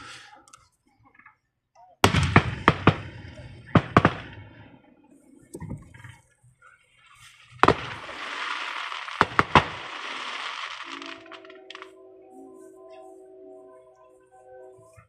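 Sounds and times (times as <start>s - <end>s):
firework bangs: 2.0s - 4.7s, 7.4s - 11.9s
firework hiss: 7.1s - 11.4s.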